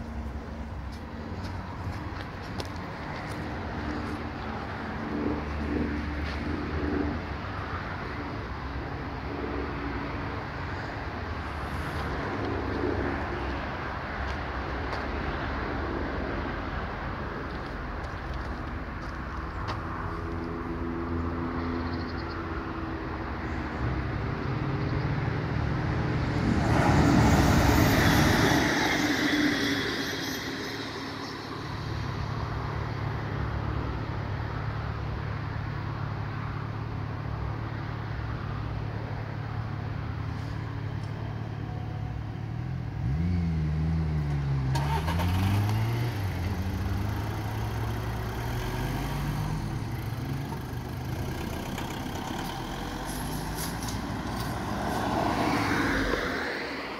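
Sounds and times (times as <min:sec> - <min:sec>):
vehicle passing: 0:09.3 - 0:34.6, 0:42.5 - 0:56.9
engine rising and falling in pitch: 0:24.5 - 0:33.7, 0:42.9 - 0:56.7
car engines idling: 0:44.3 - 0:54.6.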